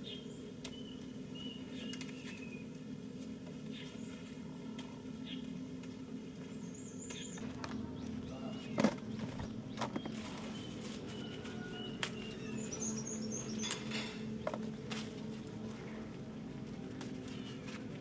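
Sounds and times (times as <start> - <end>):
small birds twittering: 0.0 - 2.7, 6.2 - 14.7
steady low hum: 0.0 - 18.0.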